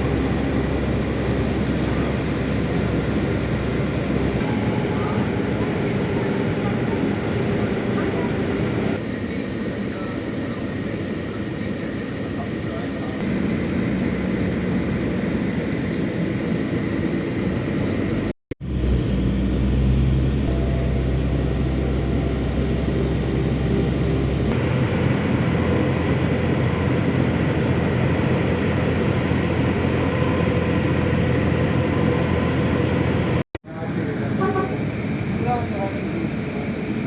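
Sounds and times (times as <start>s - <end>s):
car road and engine noise: 0.0s - 9.0s, 13.2s - 37.0s
deep low hum: 17.2s - 33.4s.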